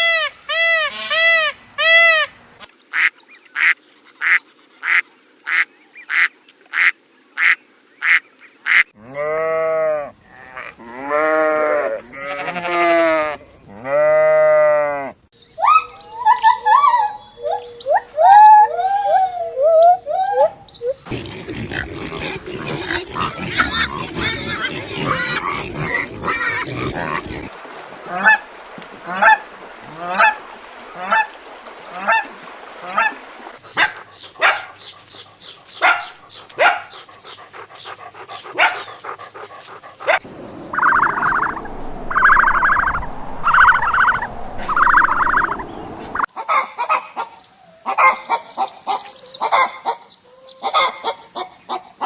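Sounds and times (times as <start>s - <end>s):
poultry calling: 21.1s - 27.5s, 31.0s - 46.3s.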